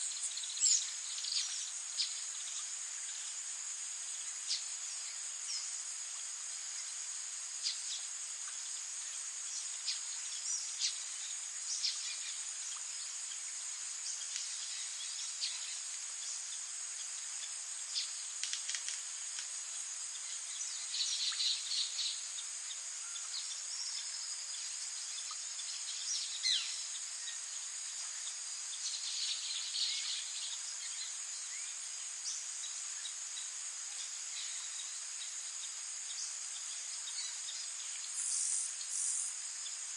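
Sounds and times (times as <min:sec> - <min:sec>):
high-pitched insect trill: 0:00.0 - 0:39.9.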